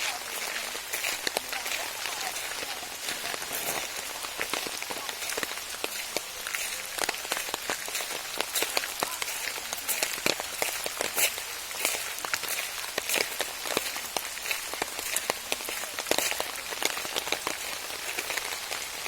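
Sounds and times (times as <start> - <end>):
raindrops ticking: 0.0 - 19.0
soft rain hiss: 0.0 - 19.0.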